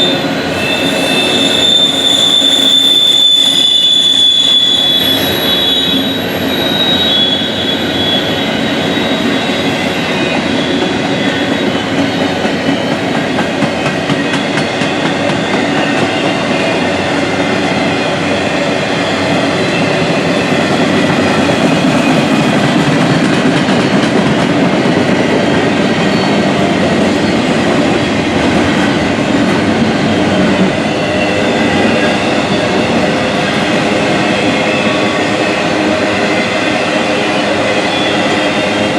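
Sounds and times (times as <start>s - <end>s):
high wheel squeal: 0.0s - 23.2s, 25.9s - 28.0s
freight train wheels rumbling: 0.0s - 38.9s.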